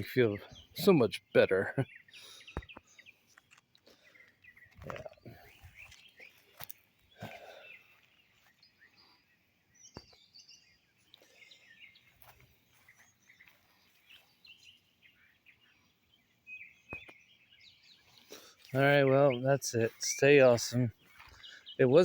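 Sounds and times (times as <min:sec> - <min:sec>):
faint bird chirping: 0:00.0 - 0:22.0.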